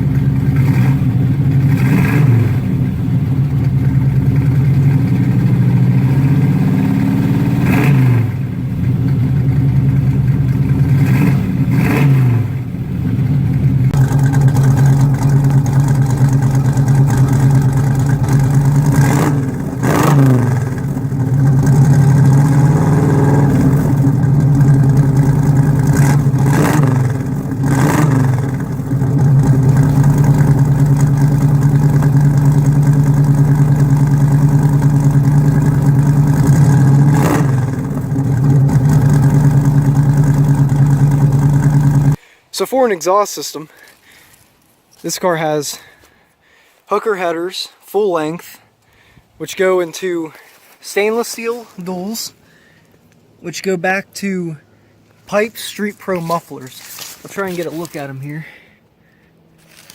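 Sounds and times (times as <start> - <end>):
car engine idling and revving: 0.0 - 42.2.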